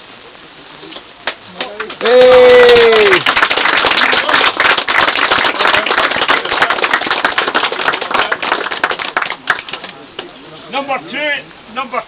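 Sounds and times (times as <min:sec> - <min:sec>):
crowd applauding: 0:01.6 - 0:10.3.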